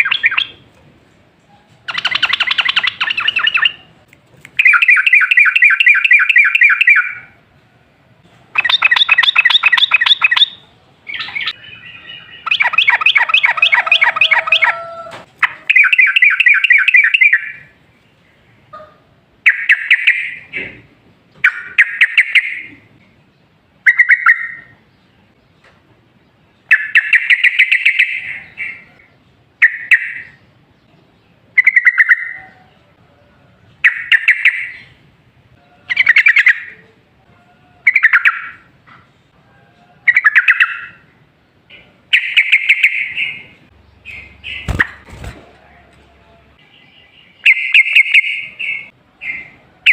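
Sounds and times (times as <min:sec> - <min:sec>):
bulbul bubbly chattering song: 0:01.9 - 0:03.9, 0:08.6 - 0:10.6, 0:12.4 - 0:14.7.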